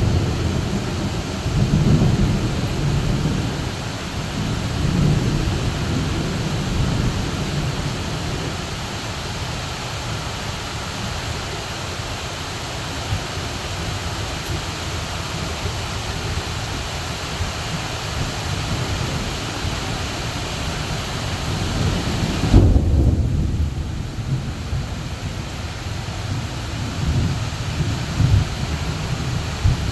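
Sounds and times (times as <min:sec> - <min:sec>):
thunder rumbling: 0:00.0 - 0:08.9, 0:17.8 - 0:29.9
heavy rain pouring: 0:00.0 - 0:29.9.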